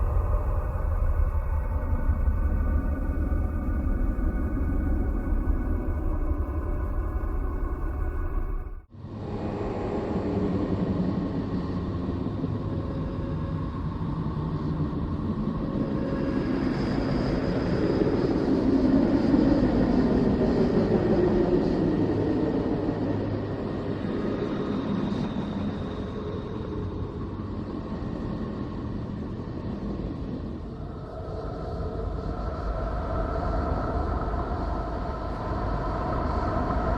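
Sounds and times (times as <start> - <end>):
rumbling hiss: 0.0 - 8.9.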